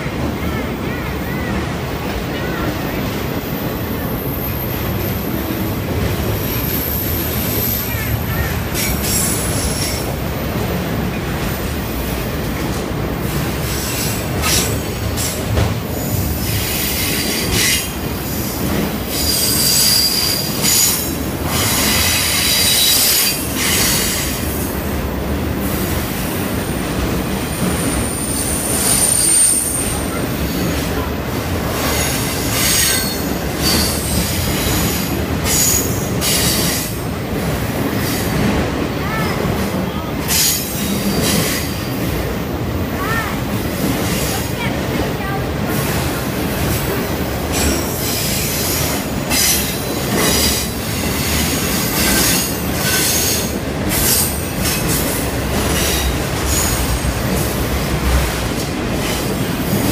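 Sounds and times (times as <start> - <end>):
train wheels rumbling on rail: 0.0 - 59.9
high wheel squeals: 27.8 - 30.6.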